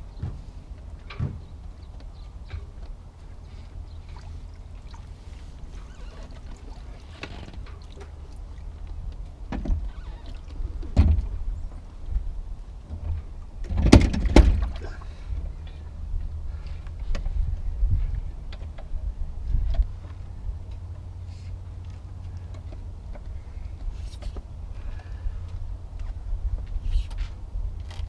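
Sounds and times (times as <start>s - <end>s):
low steady rumble: 0.0s - 28.0s
dull knocks and thuds: 1.1s - 1.5s, 12.9s - 14.8s.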